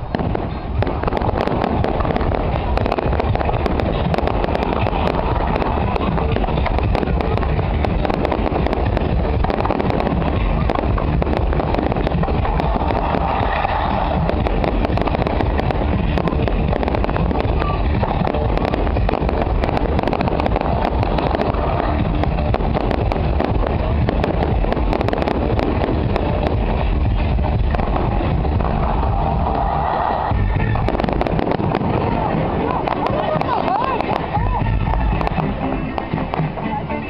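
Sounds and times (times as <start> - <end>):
deep rumble: 0.0 - 36.6
fireworks cracking and popping: 0.0 - 37.0.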